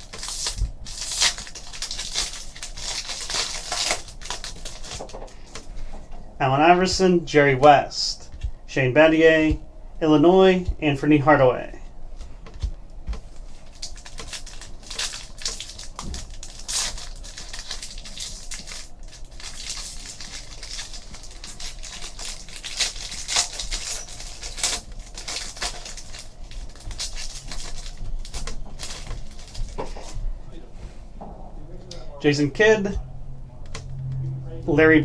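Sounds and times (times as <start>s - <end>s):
card pack wrappers tearing and crinkling: 0.0s - 5.6s, 13.3s - 30.2s.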